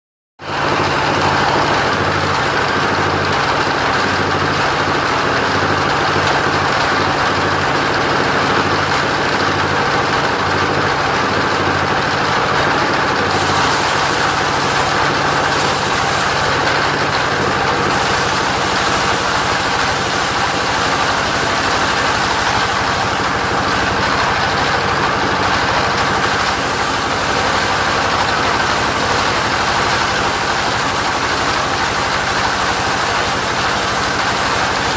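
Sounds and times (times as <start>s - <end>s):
sawmill engine running: 0.4s - 34.9s.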